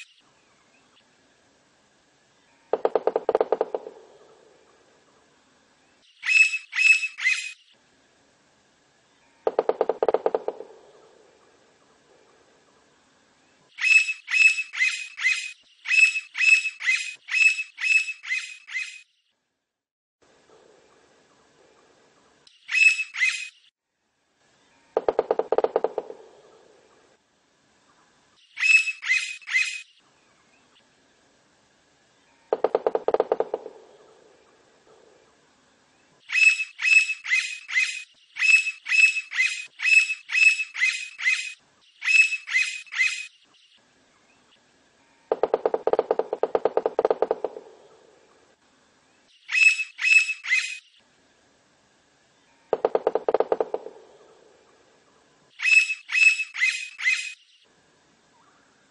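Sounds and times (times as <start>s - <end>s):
woodpecker drumming: 2.7s - 4.4s, 9.5s - 11.5s, 25.0s - 26.9s, 32.5s - 35.2s, 45.3s - 48.4s, 52.7s - 54.8s
woodpecker calling: 2.7s - 4.8s, 6.2s - 7.6s, 9.4s - 11.6s, 13.8s - 19.0s, 22.6s - 23.6s, 24.9s - 27.1s, 28.5s - 29.9s, 32.5s - 35.2s, 36.3s - 43.5s, 45.3s - 48.4s, 49.4s - 51.0s, 52.7s - 57.6s.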